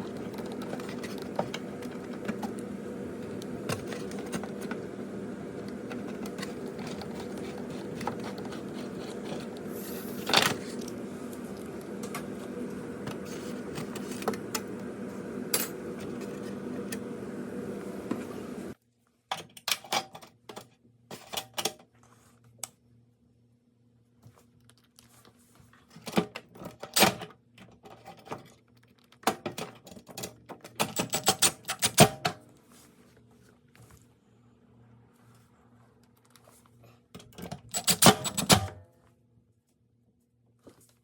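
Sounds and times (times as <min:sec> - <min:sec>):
steady rushing hum: 0:00.0 - 0:18.8.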